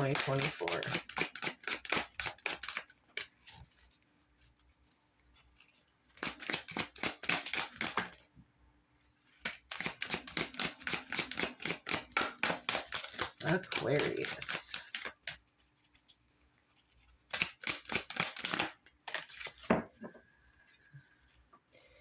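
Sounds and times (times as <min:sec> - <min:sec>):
cards being shuffled: 0:00.0 - 0:04.6, 0:05.4 - 0:08.2, 0:09.3 - 0:16.2, 0:16.8 - 0:19.9.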